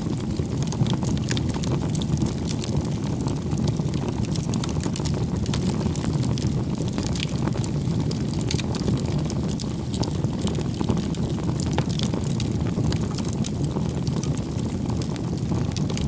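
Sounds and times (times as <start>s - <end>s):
burning wood crackling and popping: 0.0s - 16.0s
flames rushing: 0.0s - 16.0s.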